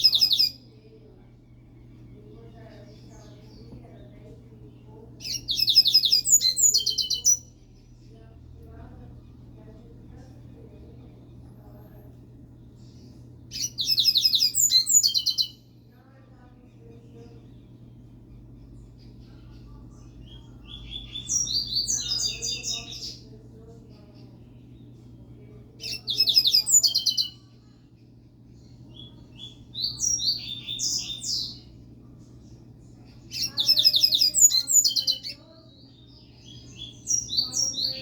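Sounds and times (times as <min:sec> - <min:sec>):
bird chirping song: 0:00.0 - 0:12.0, 0:12.6 - 0:15.8, 0:16.4 - 0:38.0
faint low hum: 0:00.0 - 0:38.0.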